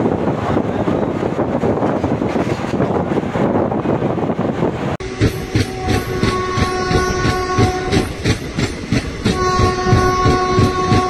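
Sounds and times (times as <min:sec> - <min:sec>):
train wheels clattering over rail joints: 0:01.4 - 0:03.2, 0:05.0 - 0:11.0
train horn blast: 0:05.0 - 0:08.2, 0:09.2 - 0:11.0.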